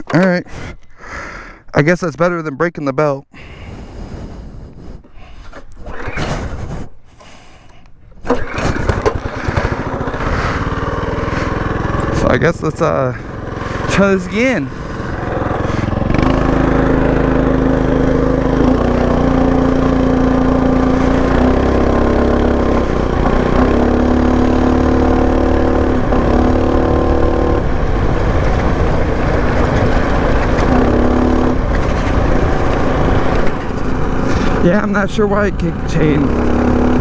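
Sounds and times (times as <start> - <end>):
mini bike engine revving: 8.2 - 37.0.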